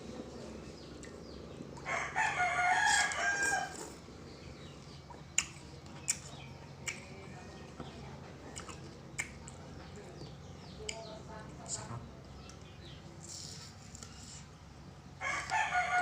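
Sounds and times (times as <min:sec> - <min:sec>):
rooster crowing: 0:01.8 - 0:04.0, 0:15.2 - 0:16.0.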